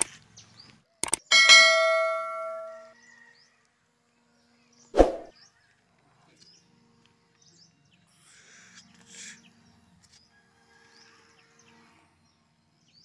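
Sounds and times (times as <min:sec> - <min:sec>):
sharp knock: 0:05.0 - 0:05.3.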